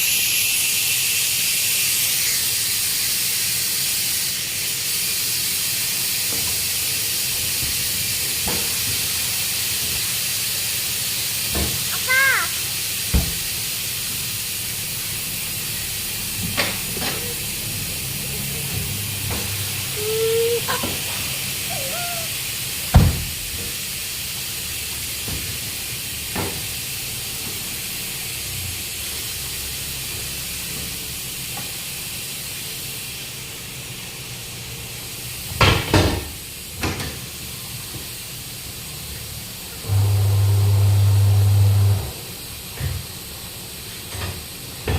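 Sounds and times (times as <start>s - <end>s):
steady hiss: 0.0s - 35.5s.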